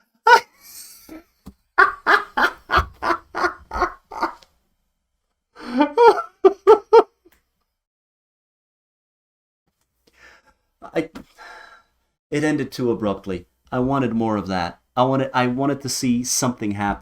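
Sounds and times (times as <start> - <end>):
man laughing hard: 1.8 - 4.4, 5.6 - 7.1.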